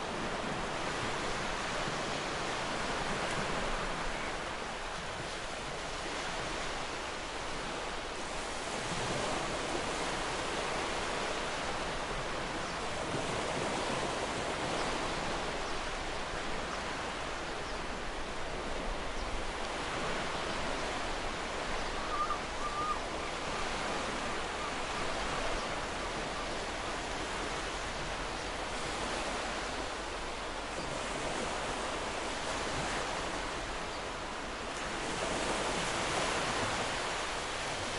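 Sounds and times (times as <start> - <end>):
waves breaking on a beach: 0.0 - 37.9.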